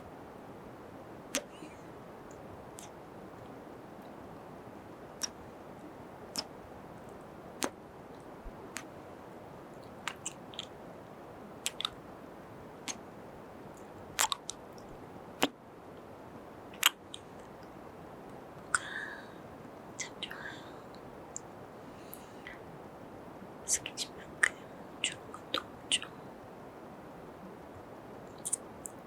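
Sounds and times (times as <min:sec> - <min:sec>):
faint hiss: 0:00.0 - 0:29.0
wet lip smacks: 0:06.3 - 0:06.5, 0:10.1 - 0:10.7, 0:11.6 - 0:12.0, 0:14.2 - 0:14.6.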